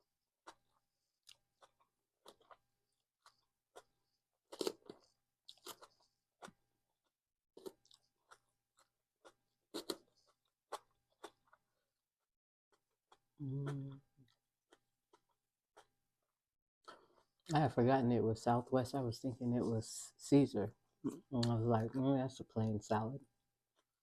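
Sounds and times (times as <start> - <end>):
person chewing salad: 0.4 - 6.6, 7.6 - 11.8, 12.7 - 16.0.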